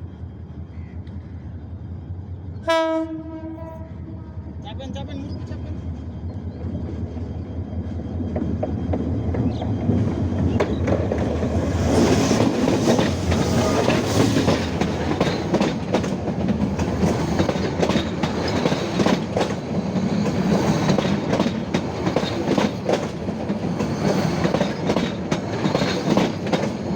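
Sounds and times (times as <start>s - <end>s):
train rumbling on rails: 0.0s - 26.9s
wheels clacking over rail joints: 8.2s - 26.9s.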